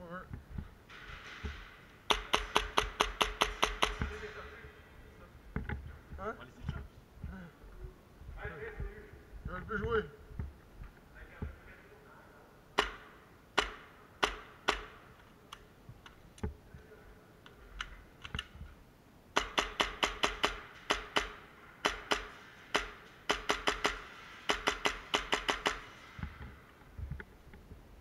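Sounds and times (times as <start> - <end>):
airsoft guns firing: 0.9 - 4.4, 12.8 - 15.2, 19.3 - 26.2.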